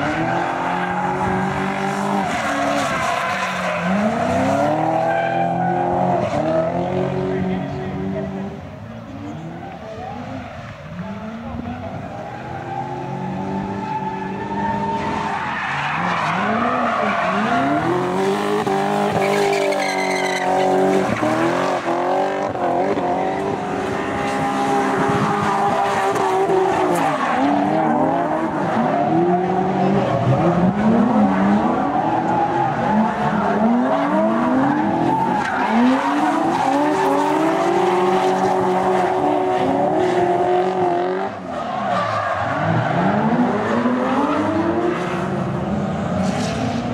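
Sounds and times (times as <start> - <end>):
tyres skidding and squealing: 0.0 - 46.9
car engine revving hard: 16.0 - 41.5.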